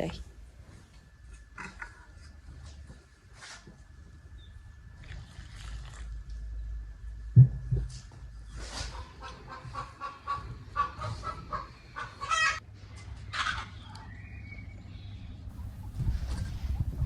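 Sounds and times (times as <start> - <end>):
chicken clucking: 8.8 - 12.6.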